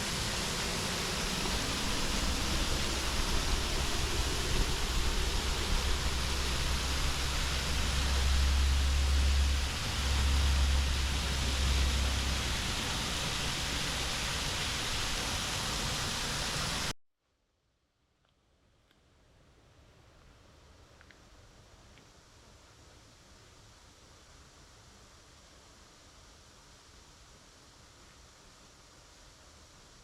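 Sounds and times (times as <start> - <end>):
low rumble: 0.0 - 16.0
waterfall roaring: 0.0 - 16.9.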